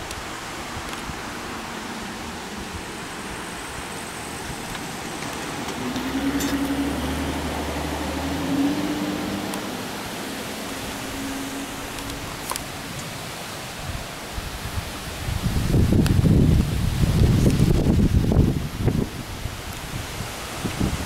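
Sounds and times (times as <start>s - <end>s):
passing vehicle engine rumble: 0.0s - 14.1s
heavy rain hissing: 0.0s - 21.0s
wind: 0.0s - 21.0s.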